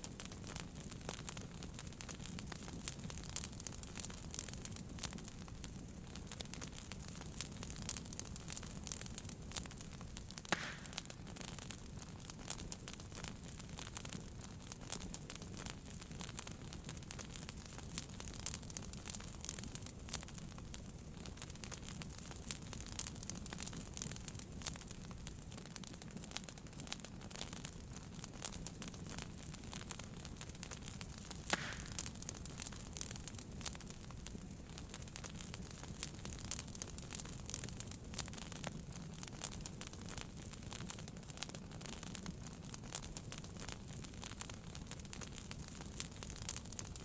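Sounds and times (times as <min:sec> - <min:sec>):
wood fire crackling: 0:00.0 - 0:47.0
loud fire snap: 0:06.4 - 0:13.3, 0:28.3 - 0:38.4.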